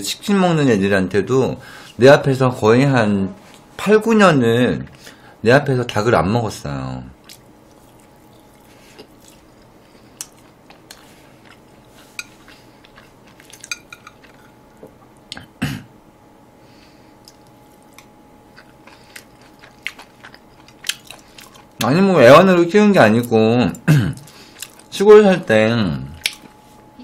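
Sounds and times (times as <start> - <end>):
chewing soft food: 7.2 - 15.5, 17.1 - 22.0, 24.1 - 25.0, 26.1 - 26.6
chopsticks and spoon tapping plate: 13.4 - 14.4.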